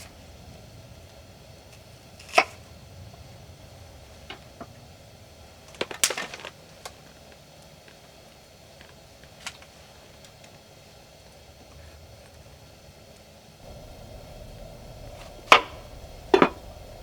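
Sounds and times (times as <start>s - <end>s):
clattering knocks: 13.7s - 17.0s.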